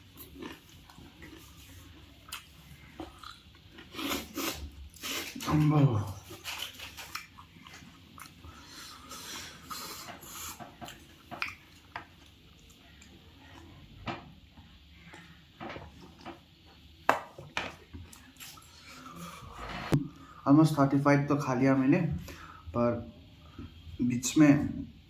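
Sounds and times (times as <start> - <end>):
chewing and crunching food: 0.0 - 16.4.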